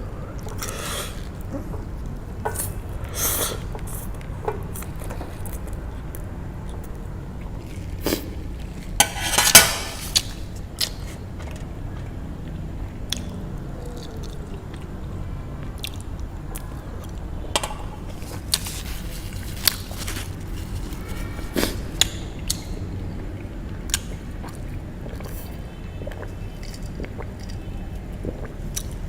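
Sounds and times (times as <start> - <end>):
chewing noodles: 18.1 - 22.8, 23.9 - 29.0.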